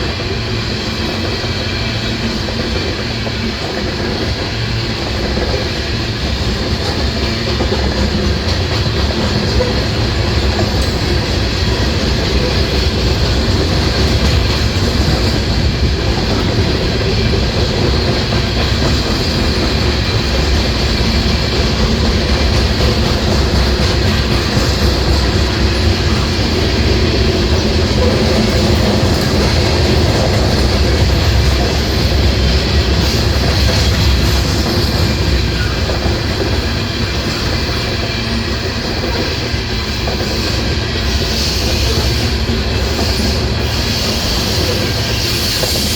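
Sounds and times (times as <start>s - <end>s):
freight train rolling past: 0.0s - 45.9s
wheels clacking over rail joints: 1.0s - 45.9s.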